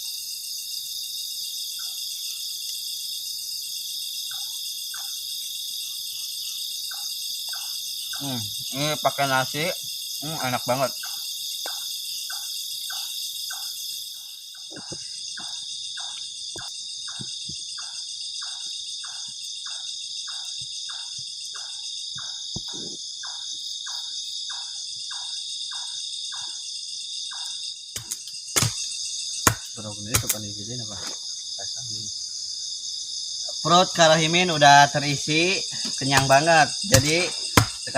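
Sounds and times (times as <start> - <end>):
crickets trilling: 0.0 - 37.9
sharp knocks and clicks: 29.4 - 30.4.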